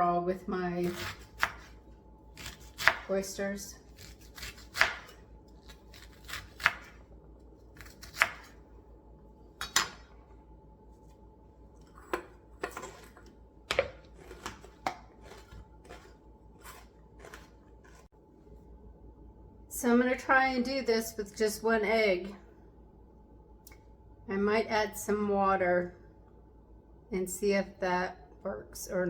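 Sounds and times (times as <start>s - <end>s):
knife chopping on cutting board: 0.9s - 1.7s, 2.4s - 3.1s, 4.0s - 5.2s, 5.9s - 7.0s, 7.8s - 8.6s.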